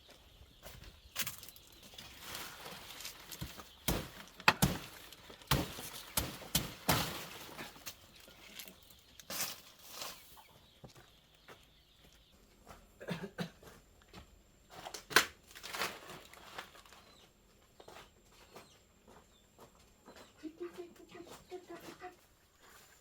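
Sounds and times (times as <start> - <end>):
rustling: 1.2 - 10.5.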